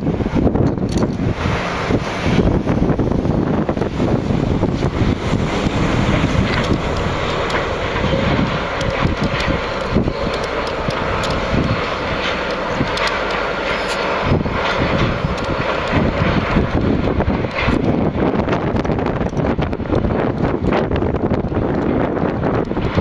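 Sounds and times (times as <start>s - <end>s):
freight train rumbling: 0.0s - 23.0s
wind buffeting microphone: 0.0s - 23.0s.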